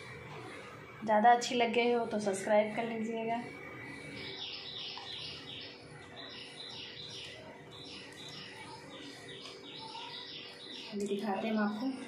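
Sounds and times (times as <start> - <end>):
small bird chirping: 4.0 - 12.0.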